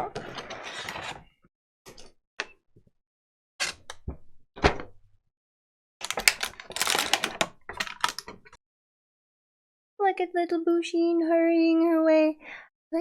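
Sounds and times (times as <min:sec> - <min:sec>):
packaging clicks and crinkles: 0:06.0 - 0:08.3.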